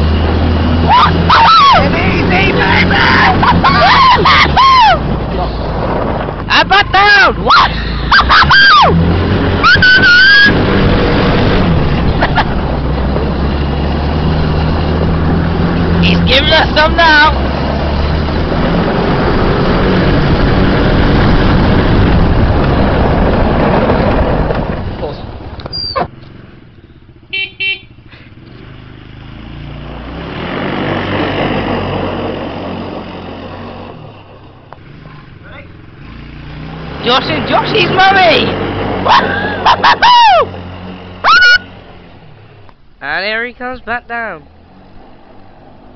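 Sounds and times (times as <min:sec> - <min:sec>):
buggy engine droning: 0:00.0 - 0:45.9
high-pitched whooping cries: 0:00.8 - 0:02.0, 0:02.6 - 0:05.1, 0:07.5 - 0:09.0, 0:09.6 - 0:10.6, 0:39.0 - 0:40.5, 0:41.2 - 0:41.8
horn beeps: 0:27.2 - 0:28.1.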